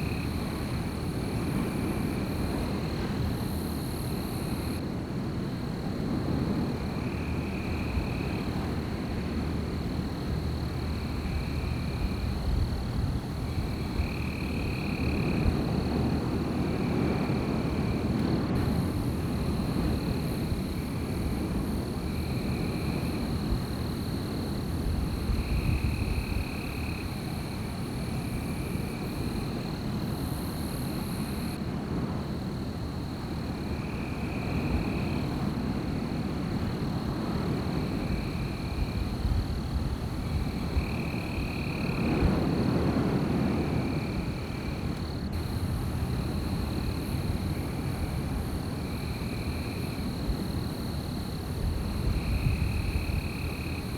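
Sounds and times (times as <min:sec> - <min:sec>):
wind through trees: 0:00.0 - 0:53.9.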